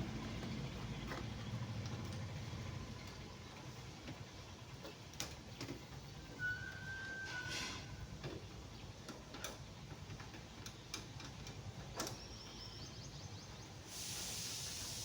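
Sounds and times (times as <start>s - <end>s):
hand tools clicking on a bolt: 9.0s - 12.2s
steady hiss: 13.7s - 15.0s.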